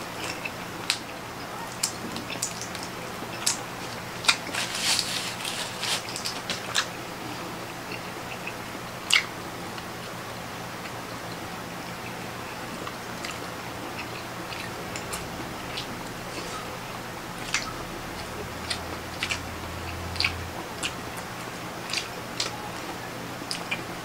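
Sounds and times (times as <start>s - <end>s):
wet chewing and mouth clicks: 1.7s - 6.9s, 7.9s - 9.3s, 12.8s - 23.9s.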